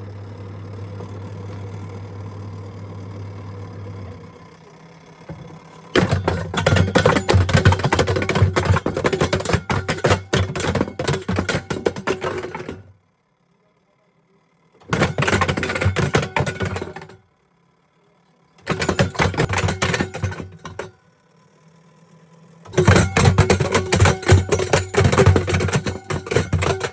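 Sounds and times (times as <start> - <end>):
washing machine hum: 0.0 - 13.0, 14.8 - 17.2, 18.6 - 21.0, 22.7 - 26.9
kettle clattering in washing machine: 5.3 - 12.9, 14.8 - 17.2, 18.6 - 20.9, 22.7 - 26.9.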